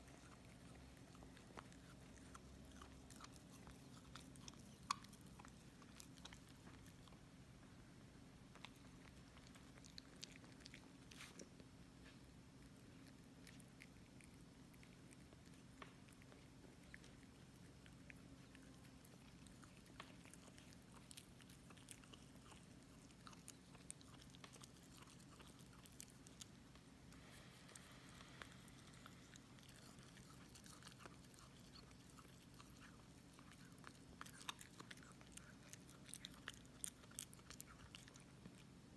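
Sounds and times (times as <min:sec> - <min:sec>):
low steady hum: 0:00.0 - 0:38.9
puppy chewing and gnawing: 0:00.0 - 0:38.9
teeth crunching and clicking: 0:13.0 - 0:26.6, 0:28.8 - 0:38.7.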